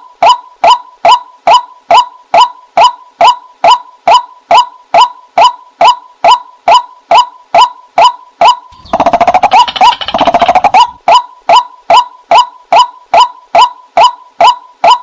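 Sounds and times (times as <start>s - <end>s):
bird calling sharp rising notes: 8.7s - 11.3s.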